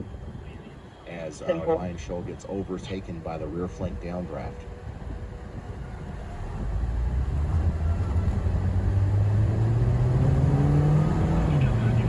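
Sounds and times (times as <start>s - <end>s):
vehicle engine speeding up: 6.1s - 12.0s.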